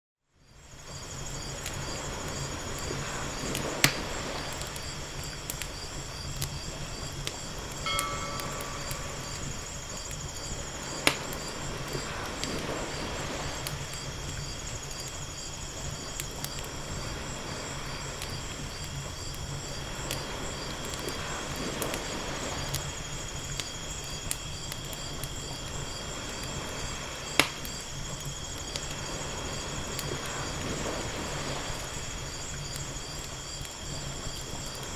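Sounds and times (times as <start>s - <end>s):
insects chirping: 0.4s - 34.9s
wood fire crackling and popping: 0.7s - 34.9s
ocean waves washing in: 7.9s - 10.0s, 29.0s - 32.4s.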